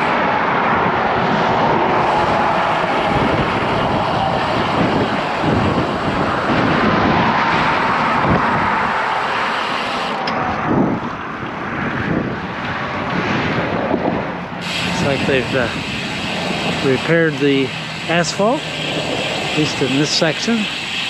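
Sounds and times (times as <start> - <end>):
wind buffeting microphone: 0.0 - 19.9
road traffic: 0.0 - 21.0.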